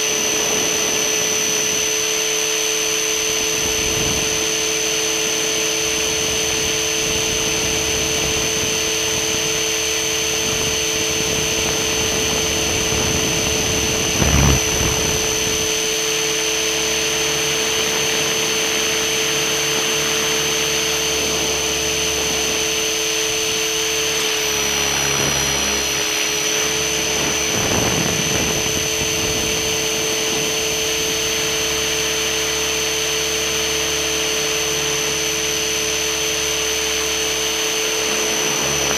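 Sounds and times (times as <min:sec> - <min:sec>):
model helicopter motor whine: 0:00.0 - 0:38.9.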